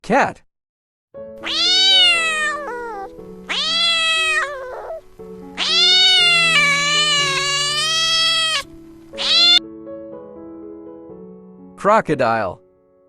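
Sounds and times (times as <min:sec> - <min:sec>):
soft background music: 0:01.2 - 0:13.0
cat meowing: 0:01.4 - 0:09.6.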